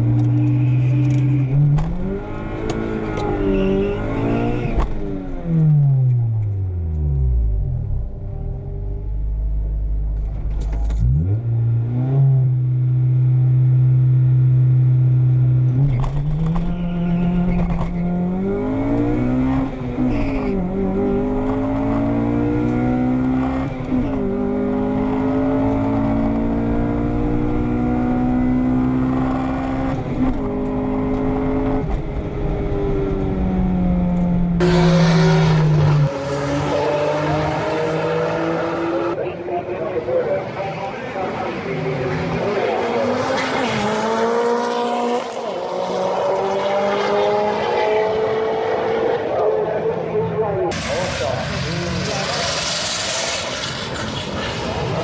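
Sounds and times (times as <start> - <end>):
car engine accelerating through gears: 0.0 - 39.2, 42.0 - 55.0
loud rushing noise: 50.7 - 55.0.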